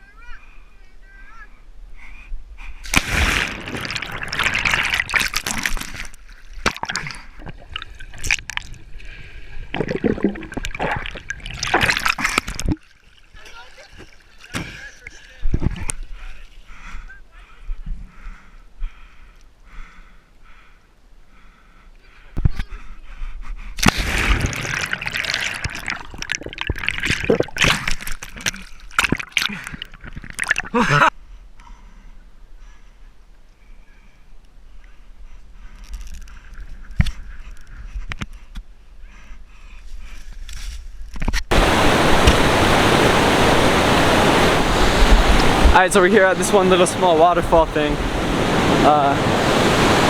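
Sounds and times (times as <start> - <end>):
water splashing and sloshing: 2.9 - 16.2, 23.8 - 30.8, 41.5 - 50.0.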